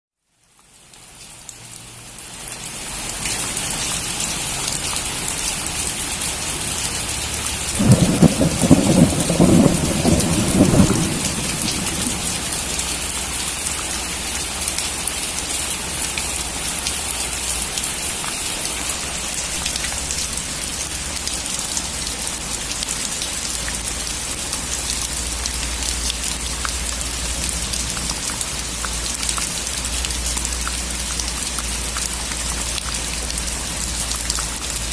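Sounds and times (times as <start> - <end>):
steady rain falling: 0.1 - 34.9
thunder rumbling: 7.7 - 13.2.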